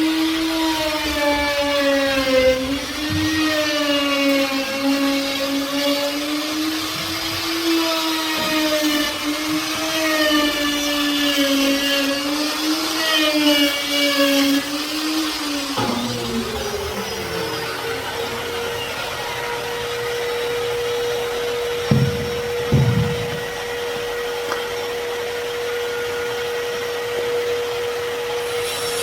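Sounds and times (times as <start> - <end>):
power tool motor whining: 0.0 - 27.1.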